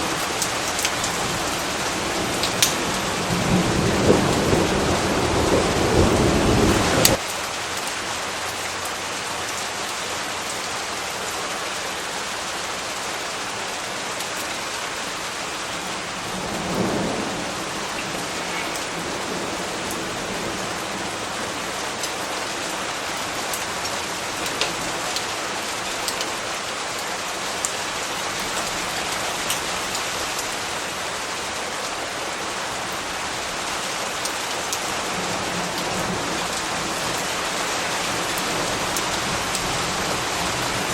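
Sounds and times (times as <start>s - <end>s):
thunder rumble: 0.0s - 7.2s, 15.9s - 21.8s
steady rain falling: 0.0s - 40.9s.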